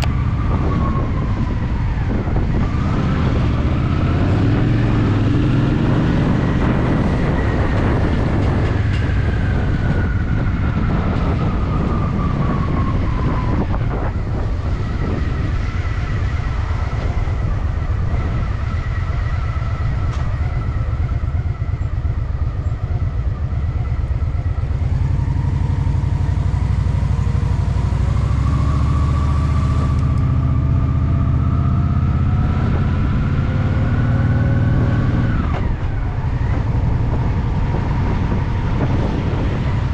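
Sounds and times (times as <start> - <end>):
motorcycle engine running: 13.8 - 39.9.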